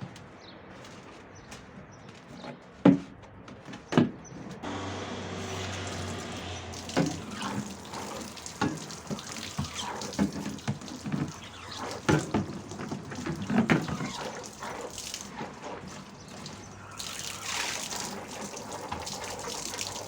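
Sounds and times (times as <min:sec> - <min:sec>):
running water splashing: 0:05.3 - 0:20.0.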